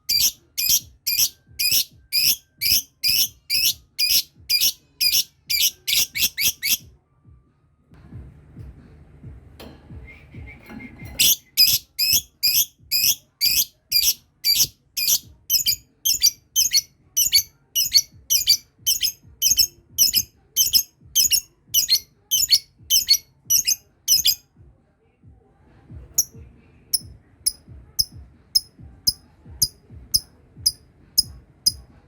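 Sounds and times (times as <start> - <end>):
lovebird shrill chattering calls: 0.1 - 6.8, 11.2 - 24.4.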